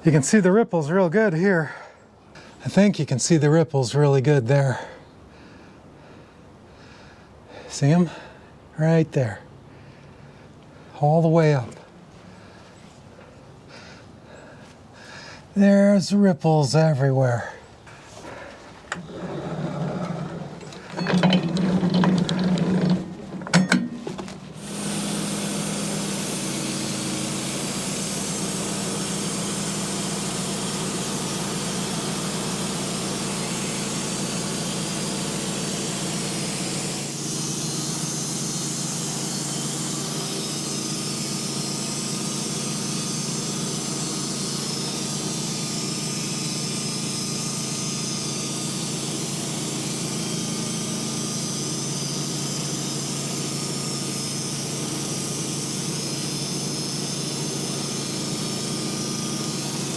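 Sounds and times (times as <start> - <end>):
sawmill blade cutting log: 18.4 - 59.9.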